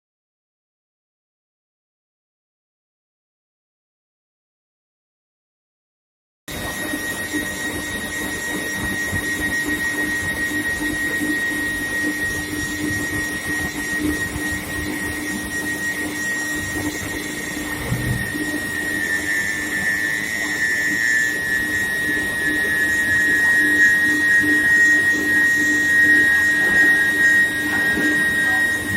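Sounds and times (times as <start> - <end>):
high-pitched whine: 6.5 - 28.9
second whine sliding lower: 7.3 - 28.9
machinery noise: 17.2 - 19.7
low steady hum: 17.7 - 18.6
short low knock: 17.8 - 18.4.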